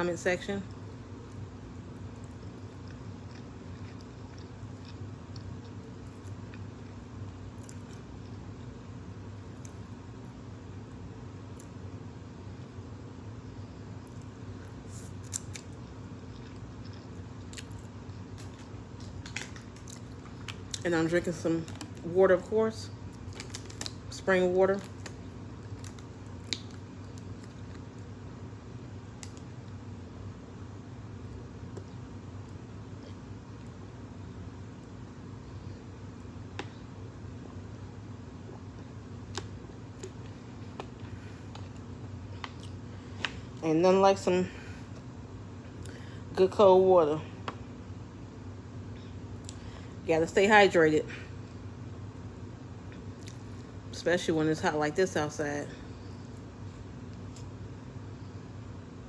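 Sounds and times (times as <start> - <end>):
steady low hum: 0.0 - 59.0
person chewing noodles: 1.9 - 8.6, 14.9 - 20.8.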